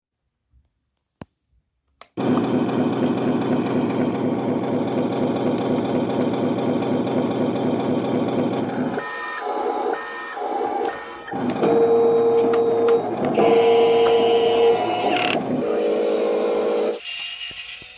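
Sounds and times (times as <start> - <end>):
simulated truck engine: 2.2 - 17.0
electronic tones: 9.0 - 17.0.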